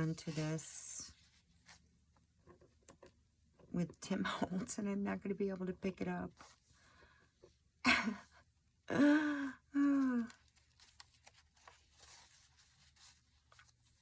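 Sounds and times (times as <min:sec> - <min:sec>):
paper rustling: 0:00.0 - 0:01.9, 0:10.2 - 0:14.0
woman sighing: 0:08.9 - 0:10.4.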